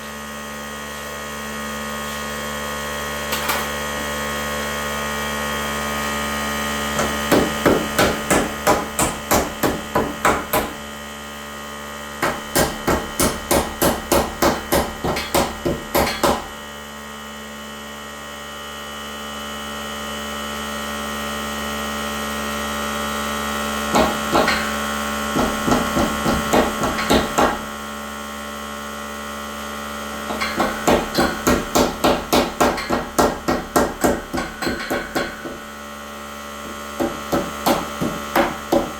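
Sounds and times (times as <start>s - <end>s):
hammer driving nails into wood: 7.0s - 10.8s, 12.2s - 16.5s, 23.9s - 27.7s, 30.3s - 35.7s, 37.0s - 38.9s.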